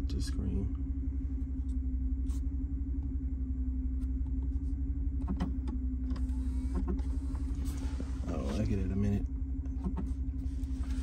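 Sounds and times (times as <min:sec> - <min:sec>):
car engine idling: 0:00.0 - 0:11.0
steady hum: 0:00.0 - 0:11.0.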